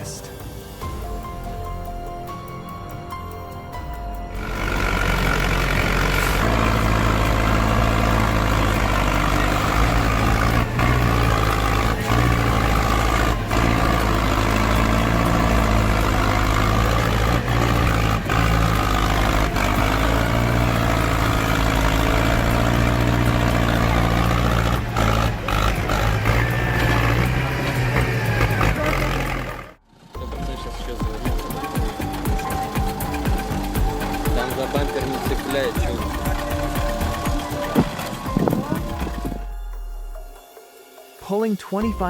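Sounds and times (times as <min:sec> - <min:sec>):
heavy diesel tractor engines under load: 0:04.2 - 0:39.4.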